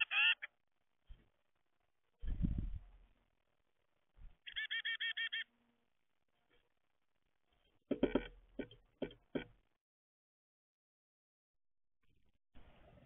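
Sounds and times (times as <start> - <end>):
harsh bird calls: 4.4 - 5.5.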